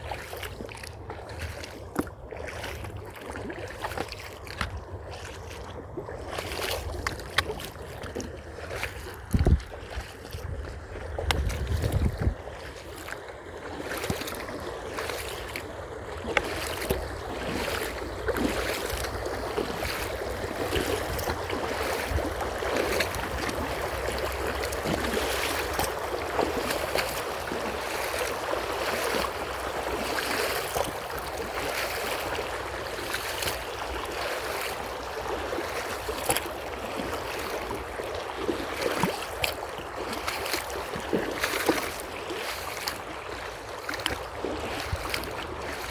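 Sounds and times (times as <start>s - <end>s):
creek water running: 0.0s - 45.9s.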